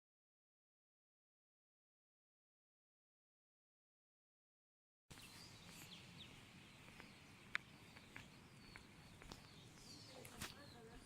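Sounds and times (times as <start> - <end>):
small birds chirping: 5.1 - 11.0.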